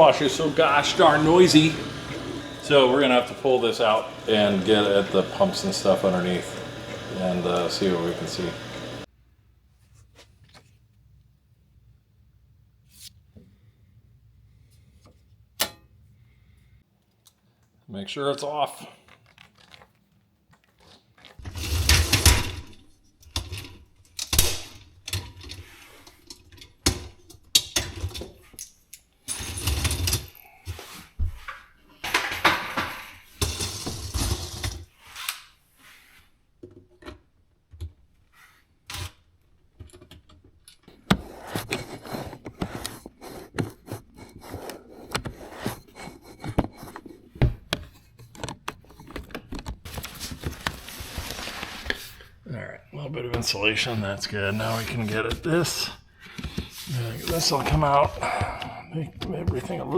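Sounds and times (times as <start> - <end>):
dishwasher parts scraping and rattling: 0.0 - 8.9
long dragging scrapes: 0.0 - 9.1.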